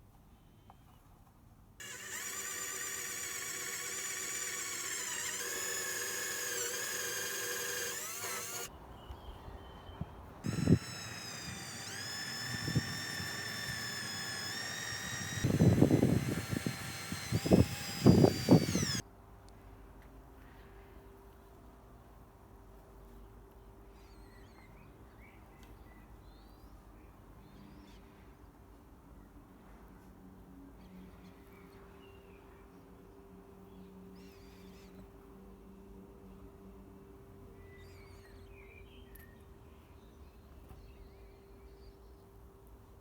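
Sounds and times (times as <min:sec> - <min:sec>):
power drill whining: 0:01.8 - 0:08.7, 0:10.4 - 0:19.0.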